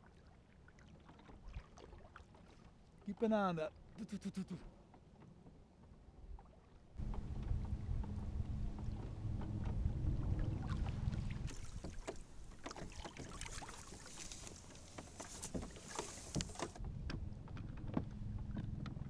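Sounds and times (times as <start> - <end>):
water splashes: 0.0 - 4.8, 6.2 - 16.8
low rumble: 7.0 - 11.5
small knocks on kayak: 11.5 - 18.9
water hiss: 13.5 - 16.8.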